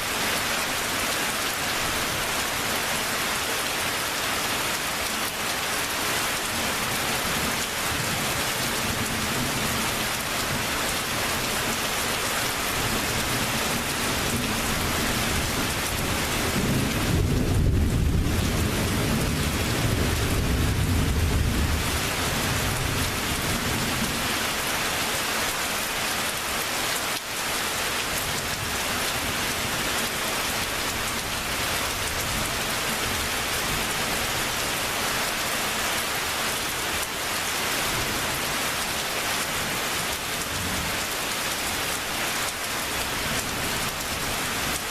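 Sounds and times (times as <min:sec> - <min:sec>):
low rumble of thunder: 0:15.4 - 0:24.0.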